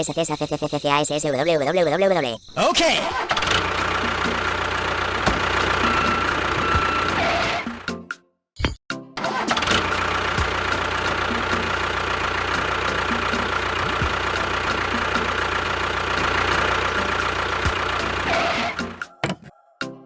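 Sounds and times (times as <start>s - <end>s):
motor humming: 3.2s - 7.9s, 9.4s - 19.0s.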